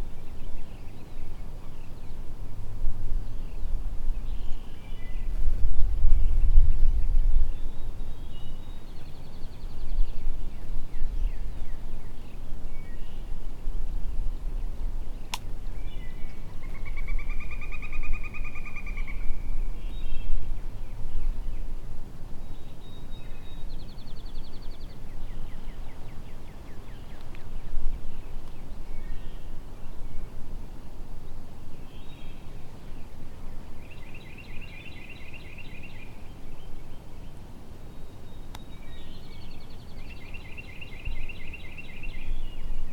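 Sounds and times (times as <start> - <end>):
songbirds trilling: 14.0 - 21.8.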